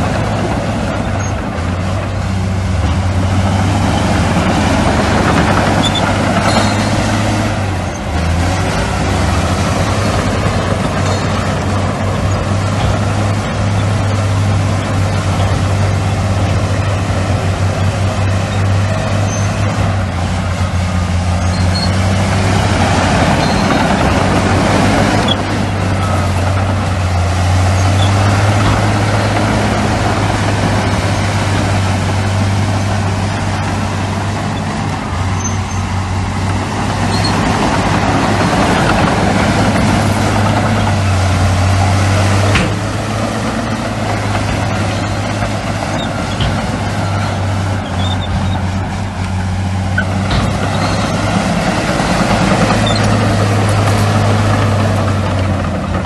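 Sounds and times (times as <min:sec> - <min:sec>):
diesel earthmoving machinery running: 0:00.0 - 0:56.0.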